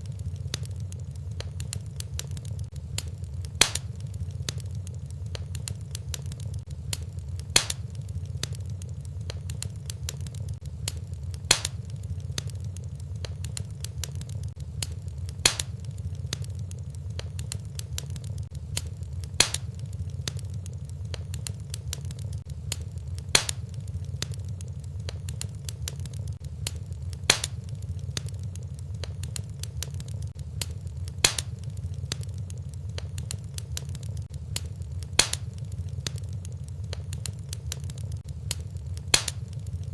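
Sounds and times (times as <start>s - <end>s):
fire crackling: 0.0s - 39.9s
steady low rumble: 0.0s - 39.9s.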